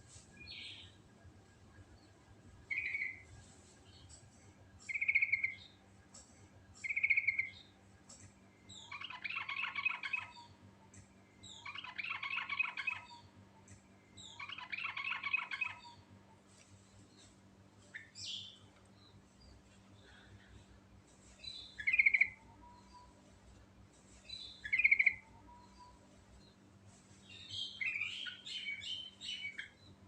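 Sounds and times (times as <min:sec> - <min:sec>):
bulbul singing: 0:04.8 - 0:05.8, 0:06.8 - 0:07.7, 0:21.4 - 0:23.2, 0:24.3 - 0:26.0.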